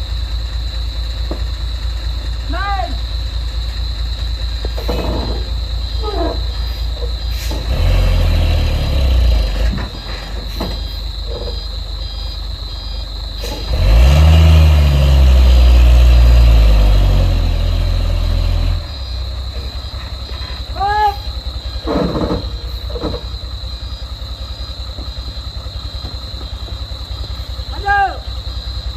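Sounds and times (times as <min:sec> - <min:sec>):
diesel engine revving: 0:00.0 - 0:28.9.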